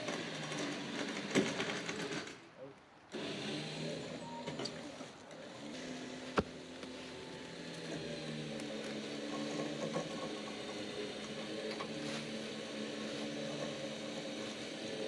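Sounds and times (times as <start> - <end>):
motor humming: 3.2 - 15.0.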